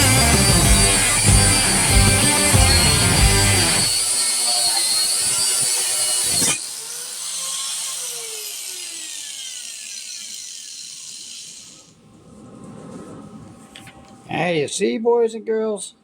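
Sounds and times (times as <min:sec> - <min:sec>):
grinder wheel spinning down: 0:00.0 - 0:12.0
power grinder whining: 0:00.0 - 0:12.0.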